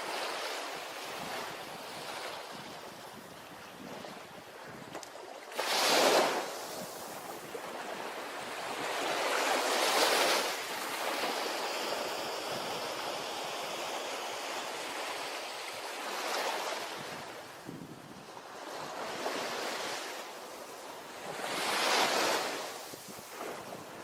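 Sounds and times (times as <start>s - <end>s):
ocean waves crashing on beach: 0.0s - 24.0s.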